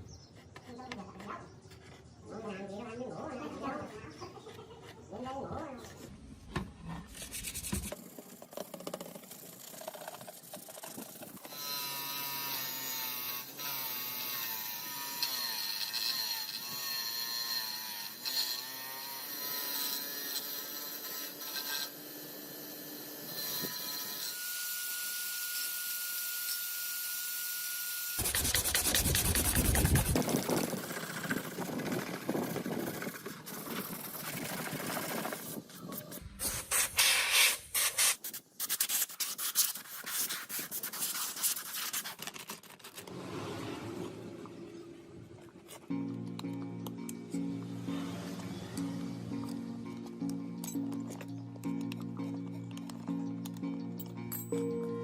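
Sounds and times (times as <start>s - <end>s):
power tool motor whine: 11.4s - 33.0s
scraping noise: 28.2s - 38.0s, 42.6s - 45.9s.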